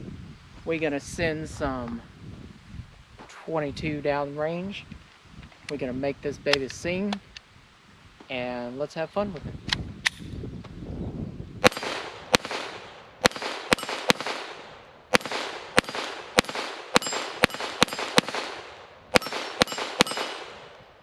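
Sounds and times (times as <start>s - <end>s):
pistol shots echoing: 11.6s - 20.8s.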